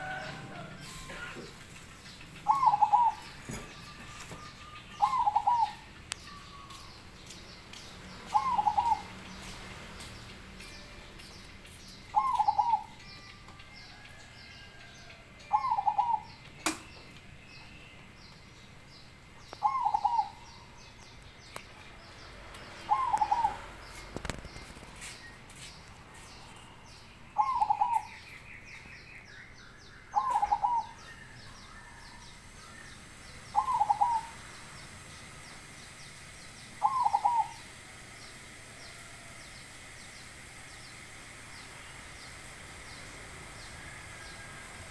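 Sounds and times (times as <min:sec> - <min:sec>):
dove cooing: 0:00.0 - 0:06.4, 0:08.2 - 0:09.5, 0:12.1 - 0:13.0, 0:15.5 - 0:16.4, 0:19.6 - 0:20.7, 0:22.8 - 0:24.1, 0:27.4 - 0:28.2, 0:30.2 - 0:39.3.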